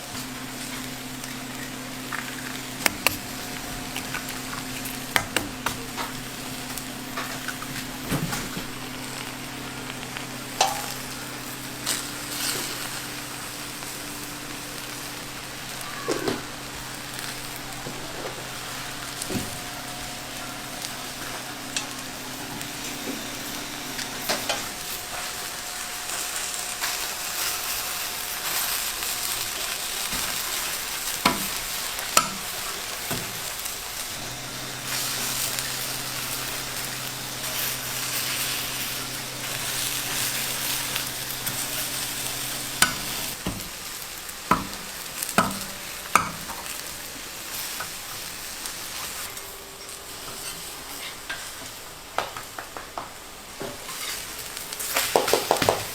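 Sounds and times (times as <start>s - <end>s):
food sizzling in a pan: 0.0s - 55.9s
utensil knocks: 2.8s - 6.2s.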